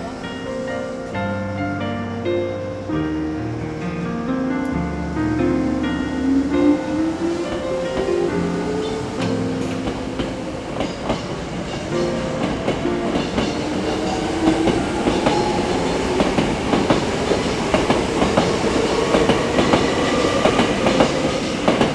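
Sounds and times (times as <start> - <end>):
electric train running past: 0.0 - 4.1, 4.7 - 21.9
wheels clicking over rail joints: 7.2 - 21.9.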